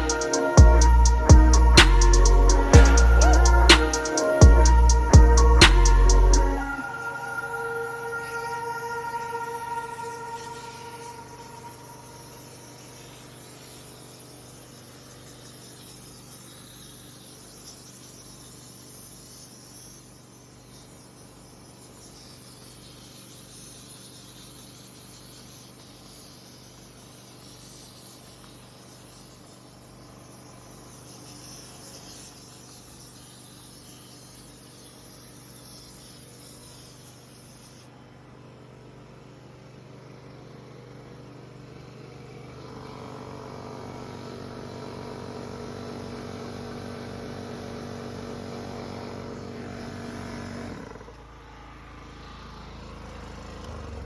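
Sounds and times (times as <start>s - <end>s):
portable generator engine running: 0.0s - 12.1s.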